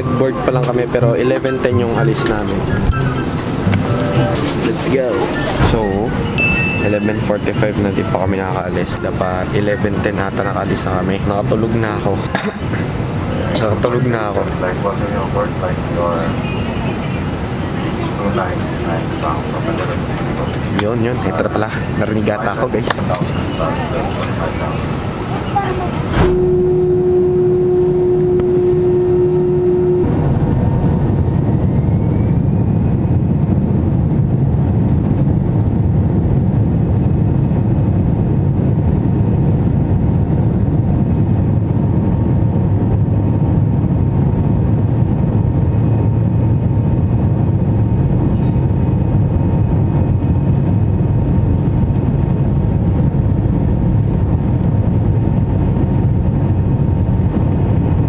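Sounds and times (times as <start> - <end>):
engine whine rising: 0.0 - 12.2, 26.0 - 33.2
airliner engines roaring: 0.0 - 58.0.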